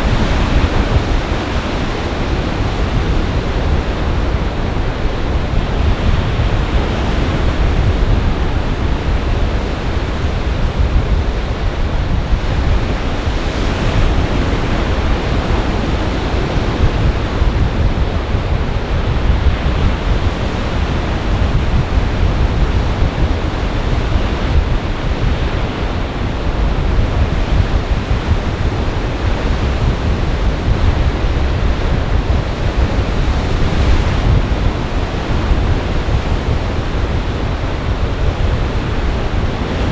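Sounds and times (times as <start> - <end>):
waves breaking: 0.0 - 11.7
wind rumble on microphone: 0.0 - 39.9.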